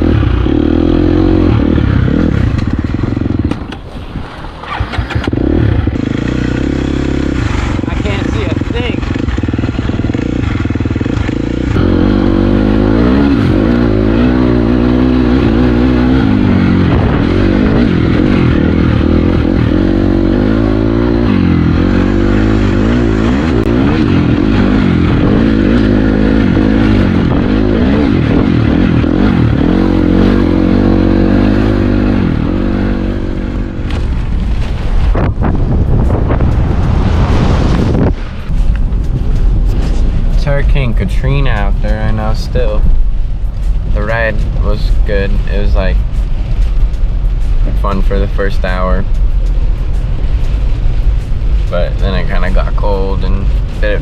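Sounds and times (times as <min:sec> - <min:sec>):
dirt bike engine revving: 0:00.0 - 0:43.1
clatter and scraping from bike: 0:02.2 - 0:11.8, 0:33.7 - 0:41.2.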